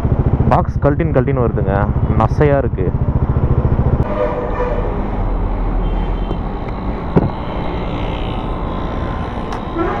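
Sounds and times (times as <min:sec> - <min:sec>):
motorcycle engine idling: 0:00.0 - 0:04.1
low traffic rumble: 0:00.0 - 0:10.0.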